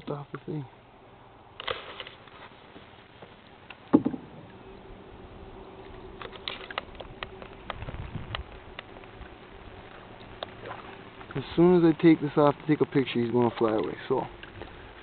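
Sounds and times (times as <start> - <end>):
sharp loud knock: 3.9 - 4.4
light knocks and taps in canoe: 3.9 - 4.6.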